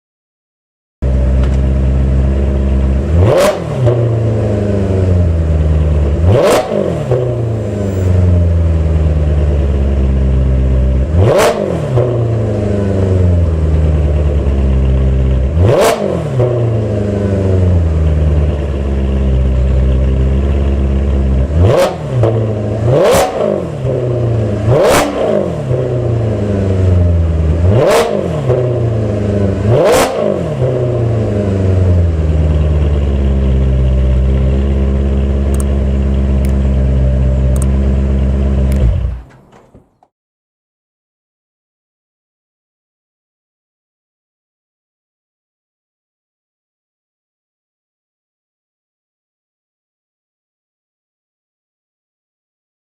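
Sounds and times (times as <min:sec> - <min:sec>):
car engine idling: 0:01.0 - 0:03.4, 0:07.0 - 0:11.0, 0:12.4 - 0:15.6, 0:16.8 - 0:21.5, 0:31.2 - 0:40.1
engine throttle blips: 0:35.5 - 0:40.1.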